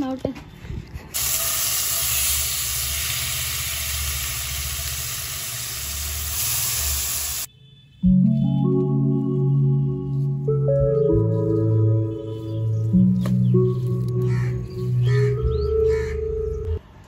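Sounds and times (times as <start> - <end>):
food frying in hot oil: 1.2 - 7.5.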